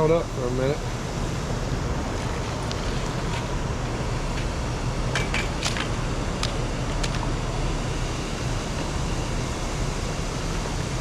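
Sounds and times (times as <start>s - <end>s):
low hum: 0.0s - 11.0s
steady rushing noise: 0.0s - 11.0s.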